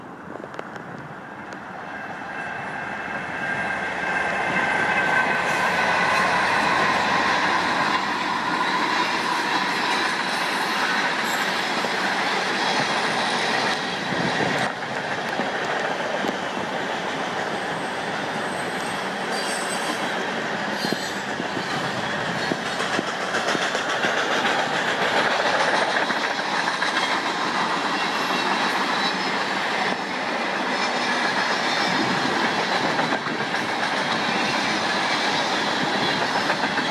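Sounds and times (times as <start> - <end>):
train wheels rumbling on rails: 0.0 - 36.9
high wheel squeal: 17.6 - 22.8.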